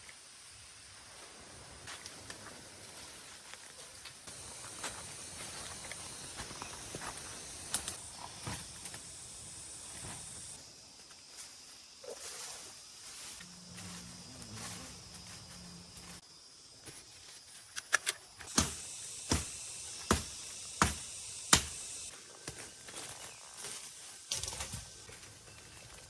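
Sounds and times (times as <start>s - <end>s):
high-pitched insect chorus: 0.0s - 26.0s
sharp knocks: 18.5s - 21.8s.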